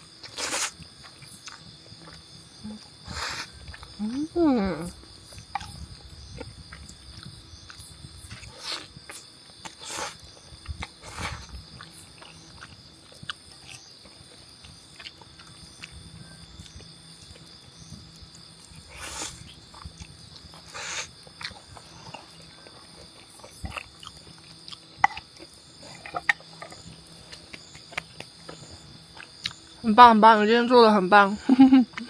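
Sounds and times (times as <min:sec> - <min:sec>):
insects chirping: 0:00.0 - 0:32.0
person slurping noodles: 0:18.9 - 0:19.4.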